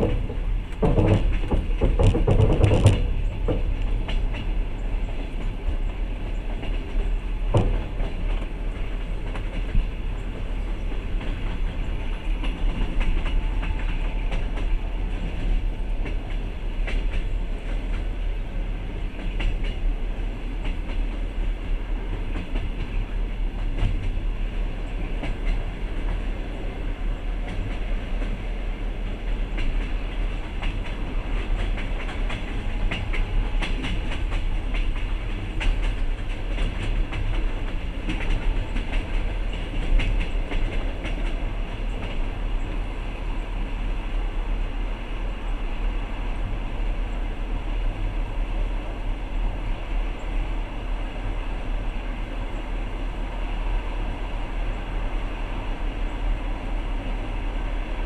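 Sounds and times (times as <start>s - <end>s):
rail joint knocks: 0.0s - 4.5s, 7.5s - 8.4s
train wheels rumbling on rail: 0.0s - 58.0s.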